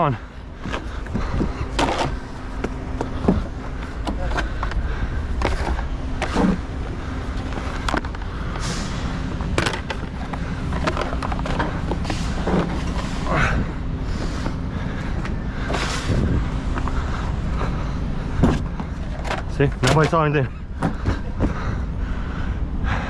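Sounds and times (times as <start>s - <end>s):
engine idling hum: 0.0s - 23.0s
knocks and clatter: 9.5s - 13.1s.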